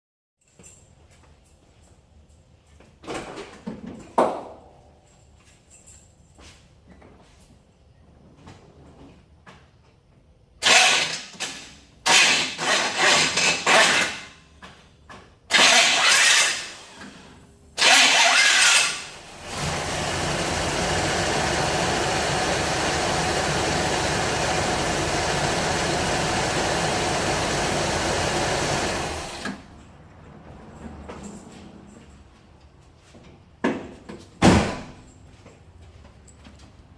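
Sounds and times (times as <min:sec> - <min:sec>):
car starter bursts: 0:15.5 - 0:29.6
engine mechanical running: 0:17.8 - 0:29.7.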